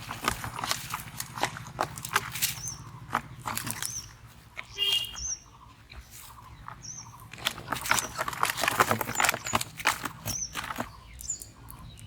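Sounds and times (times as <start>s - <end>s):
rapid clicks and rustles: 0.0s - 4.7s, 6.7s - 12.0s
small bird chirping: 0.5s - 12.0s.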